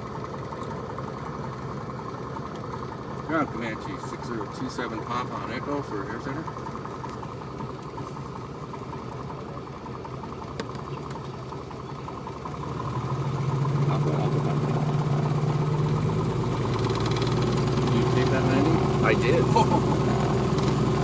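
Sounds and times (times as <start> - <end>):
propeller plane engine running: 0.0 - 21.0.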